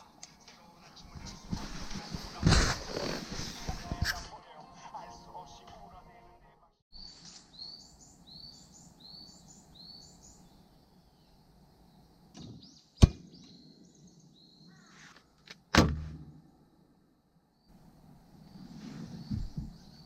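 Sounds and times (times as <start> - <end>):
songbird singing high phrase: 7.0 - 14.9.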